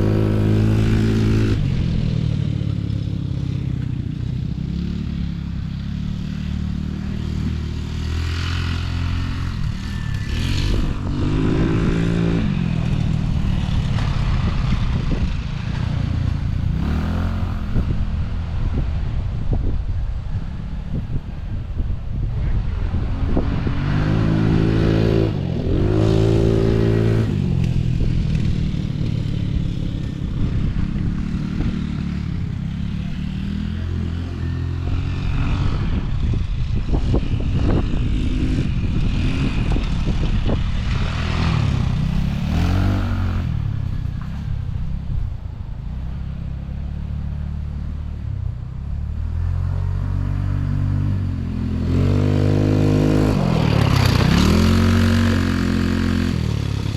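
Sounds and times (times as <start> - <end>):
small engine revving: 4.6 - 15.9, 16.5 - 18.1, 49.4 - 56.9.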